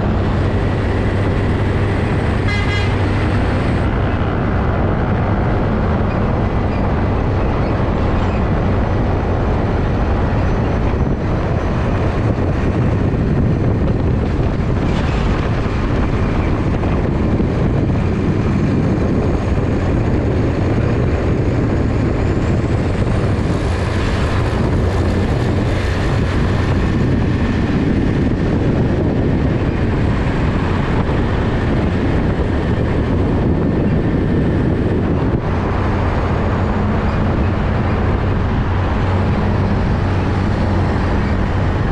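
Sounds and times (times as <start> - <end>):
diesel lorry engines rumbling: 0.0 - 41.9.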